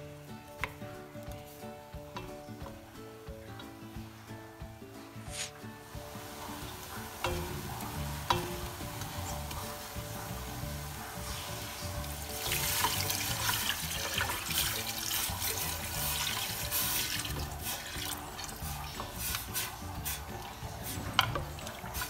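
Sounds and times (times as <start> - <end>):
spatula stirring frying paste: 5.2 - 22.0
liquid pouring into pot: 6.2 - 22.0.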